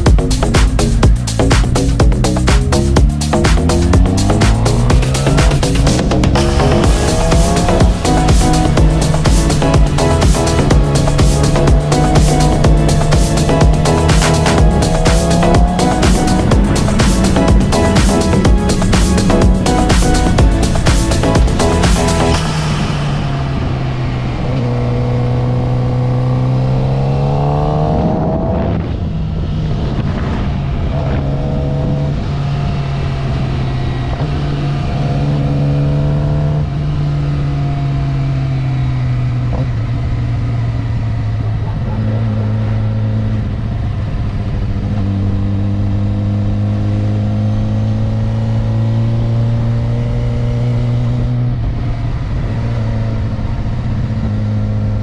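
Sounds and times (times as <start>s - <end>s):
wind noise rushing: 0.0s - 25.9s, 27.8s - 33.6s
motorcycle engine revving: 0.0s - 55.0s.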